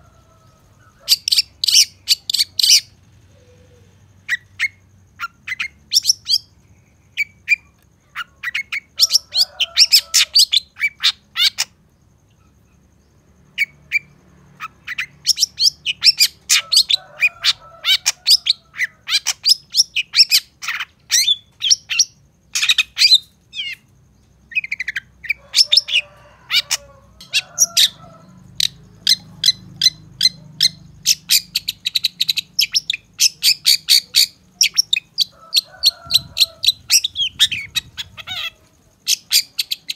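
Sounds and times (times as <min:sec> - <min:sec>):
shrike singing: 0:24.5 - 0:39.9.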